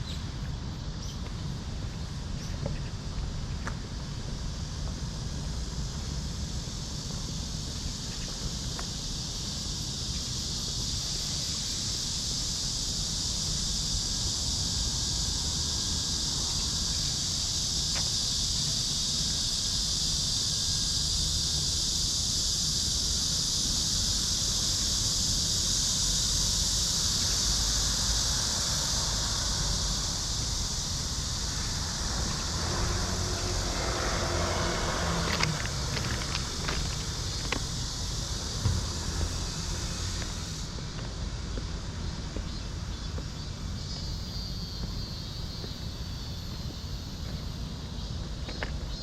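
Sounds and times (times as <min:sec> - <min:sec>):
high-pitched insect chorus: 0:00.0 - 0:49.0.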